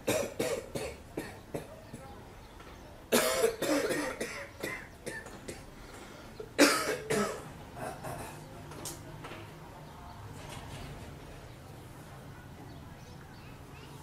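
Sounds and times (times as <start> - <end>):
man coughing hard: 0.0 - 1.7, 3.1 - 5.6, 6.6 - 8.4.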